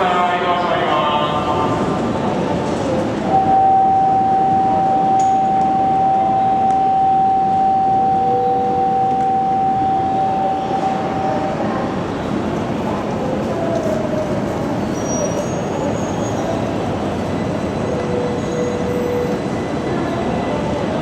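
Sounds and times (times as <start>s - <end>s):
steady high tone: 3.3s - 12.0s.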